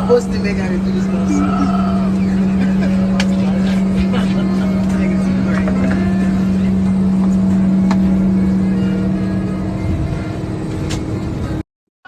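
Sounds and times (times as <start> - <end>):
engine rumble: 0.0 - 11.6
higher steady tone: 0.0 - 11.6
strong low hum: 0.0 - 11.6.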